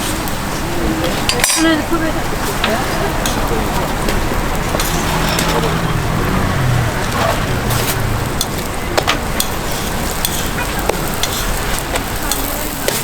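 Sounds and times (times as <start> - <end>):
food sizzling in oil: 0.0 - 13.0
oil clicking and popping: 2.5 - 13.0.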